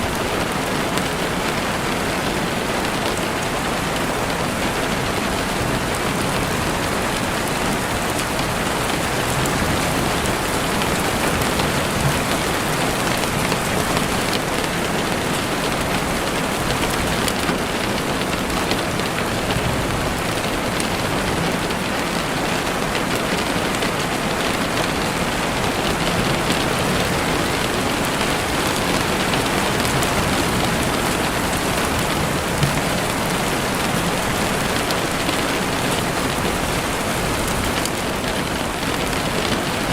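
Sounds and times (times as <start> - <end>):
heavy rain on a window: 0.0 - 39.9.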